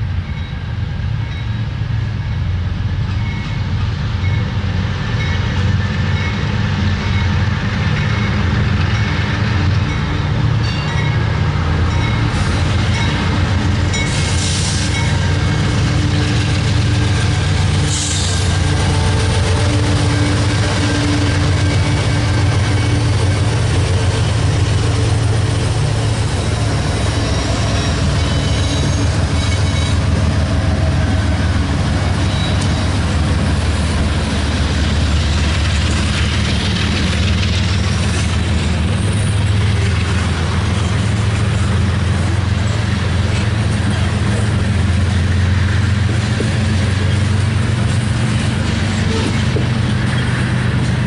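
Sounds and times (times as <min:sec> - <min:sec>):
diesel locomotive drone: 0:00.0 - 0:51.0
freight cars rumbling on rails: 0:00.0 - 0:51.0.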